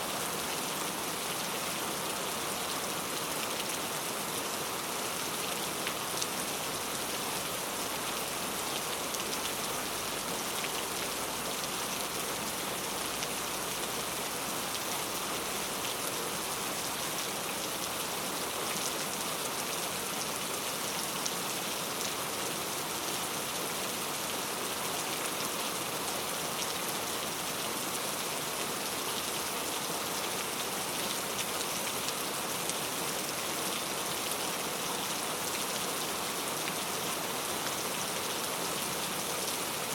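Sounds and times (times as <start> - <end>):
rain hissing on a surface: 0.0 - 39.9.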